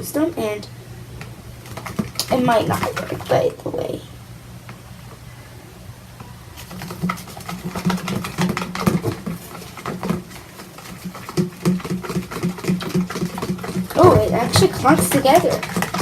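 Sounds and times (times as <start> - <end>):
slime stirred in bowl clicking: 1.2 - 3.5, 6.6 - 16.0.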